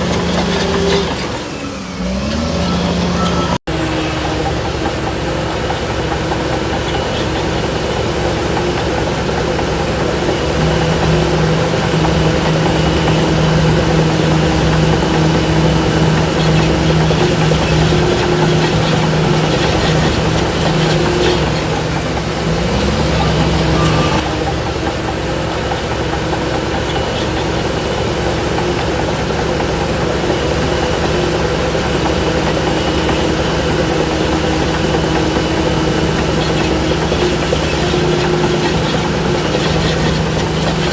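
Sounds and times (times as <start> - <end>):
heavy diesel engine running: 0.0 - 40.9.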